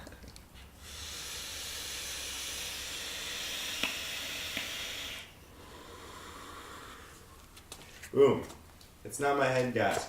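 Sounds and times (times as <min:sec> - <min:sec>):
vape hissing: 0:00.8 - 0:07.3.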